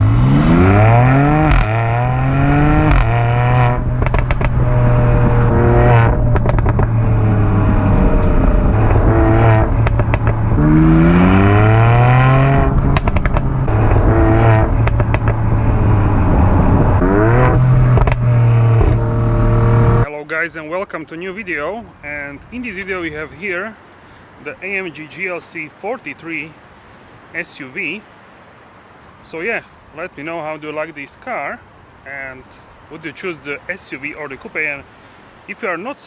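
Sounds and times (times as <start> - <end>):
car engine accelerating hard: 0.0 - 20.1
exhaust crackles and pops: 0.0 - 20.1.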